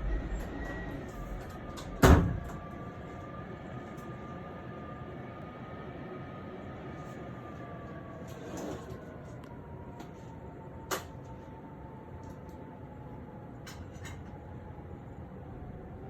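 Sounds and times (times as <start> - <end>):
loud bang: 0.0 - 2.6
wind whistling through doors: 0.0 - 16.0.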